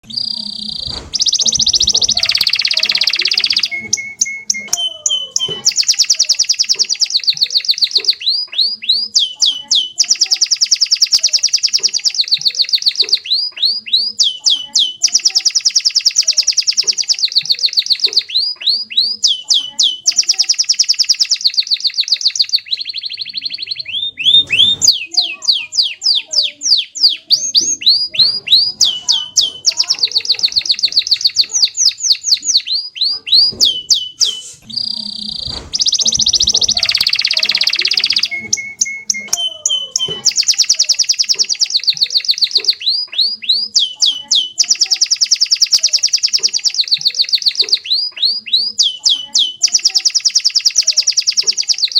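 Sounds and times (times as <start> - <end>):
canary singing trills: 0.0 - 51.9.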